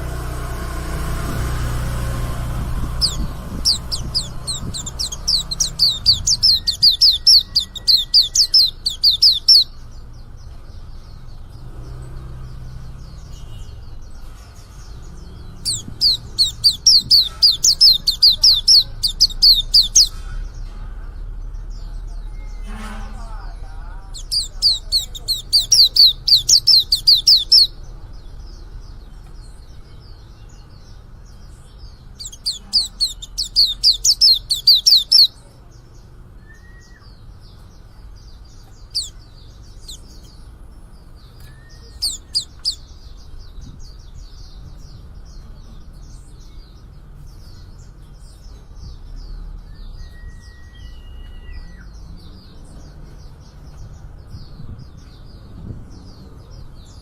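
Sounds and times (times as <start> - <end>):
young bird twittering: 1.4 - 9.8, 15.6 - 20.2, 24.1 - 27.8, 32.1 - 35.4, 38.6 - 40.5, 41.2 - 43.1.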